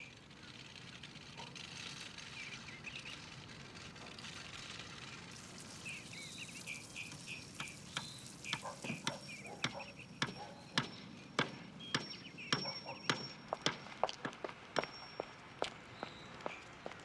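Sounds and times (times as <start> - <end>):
birds chirping: 0.0 - 13.6
steady hiss: 4.5 - 10.2
sharp ticks and knocks: 7.6 - 15.3.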